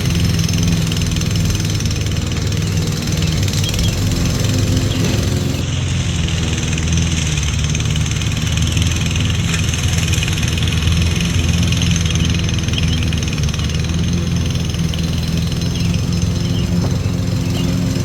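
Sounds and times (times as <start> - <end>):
lawnmower engine mowing grass: 0.0 - 18.0.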